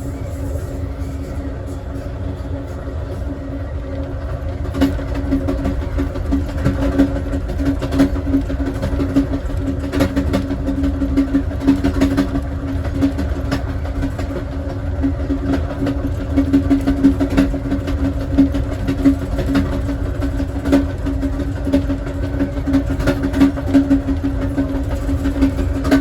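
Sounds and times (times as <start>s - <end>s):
constant hum: 0.0s - 26.0s
train wheels rumbling on rail: 0.0s - 26.0s.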